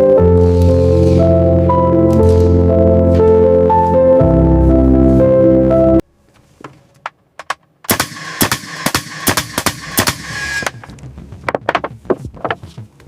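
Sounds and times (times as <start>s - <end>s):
background music: 0.0s - 6.0s, 10.6s - 13.0s
rapid sharp knocks: 7.5s - 10.9s.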